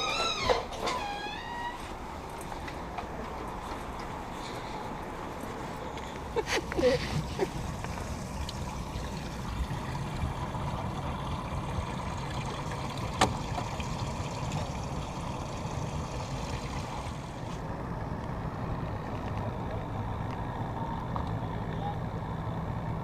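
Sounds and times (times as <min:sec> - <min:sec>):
water noise: 0:01.5 - 0:19.2
outboard motor running: 0:06.7 - 0:17.6.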